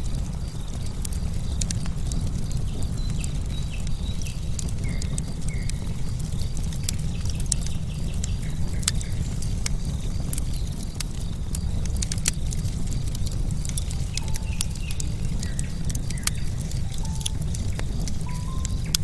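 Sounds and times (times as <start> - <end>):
logs crackling and popping: 0.0 - 19.0
low fire rumble: 0.0 - 19.0
bird chirps: 13.9 - 19.0.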